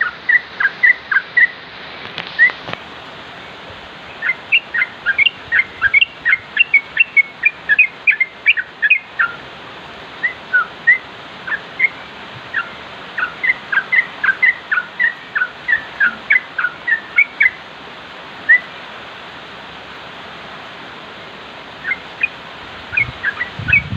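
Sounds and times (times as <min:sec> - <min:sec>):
bird chirping song: 0:00.0 - 0:01.6, 0:04.0 - 0:09.4, 0:10.2 - 0:17.6, 0:21.8 - 0:23.9.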